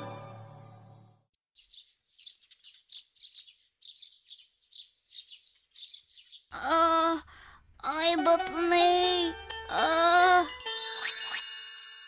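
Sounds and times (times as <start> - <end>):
small birds chirping: 1.5 - 7.3.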